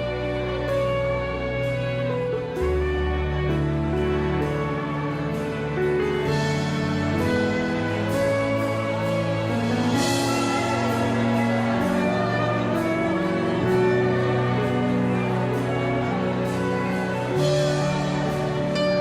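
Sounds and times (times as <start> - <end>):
slow instrumental worship music: 0.0 - 19.0.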